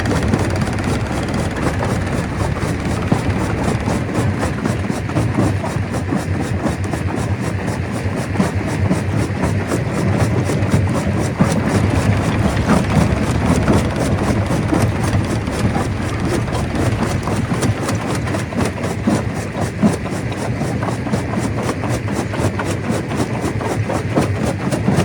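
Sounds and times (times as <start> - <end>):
heavy engine drone: 0.0 - 6.0, 11.3 - 19.4
rock clattering in crusher: 11.6 - 19.0.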